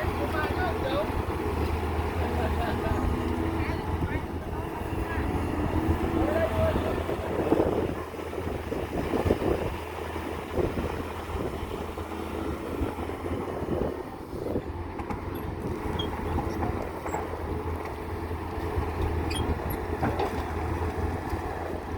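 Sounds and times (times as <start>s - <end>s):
diesel engine running: 0.0s - 21.9s
wind noise on microphone: 3.9s - 16.8s, 18.7s - 21.2s.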